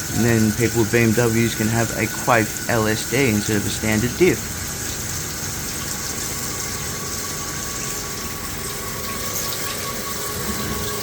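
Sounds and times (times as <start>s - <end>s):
coolant gushing: 0.0s - 11.0s
steady high tone: 6.5s - 11.0s.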